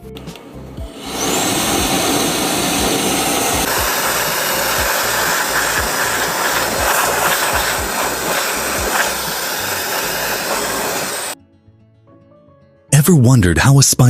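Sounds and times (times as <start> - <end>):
background music with steady beat: 0.0 - 1.2, 3.6 - 12.4
loud steady rushing noise: 0.8 - 11.4.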